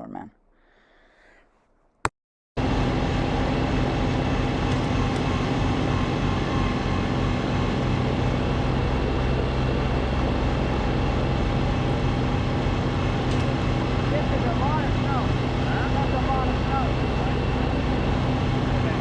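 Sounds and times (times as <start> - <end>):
snowblower engine running: 2.6 - 19.0.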